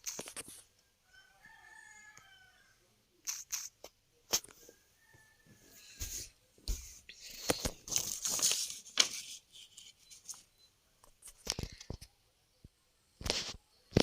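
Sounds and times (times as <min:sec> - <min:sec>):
rustling and crinkling: 0:00.0 - 0:00.7, 0:05.5 - 0:12.2.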